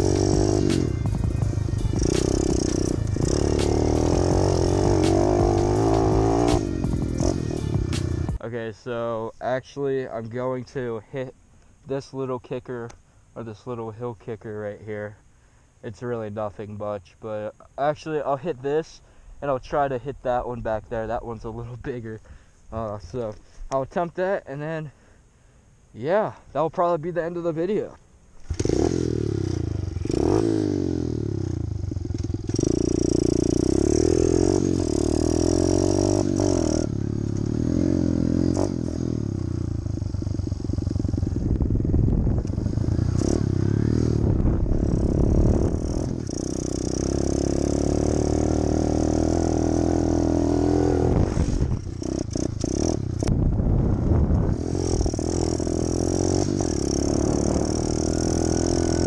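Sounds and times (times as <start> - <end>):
pit bike engine revving: 0.0 - 8.4, 28.4 - 59.0.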